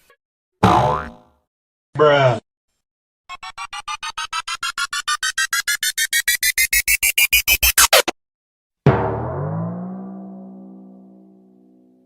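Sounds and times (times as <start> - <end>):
deep ringing hit: 8.9 - 12.0.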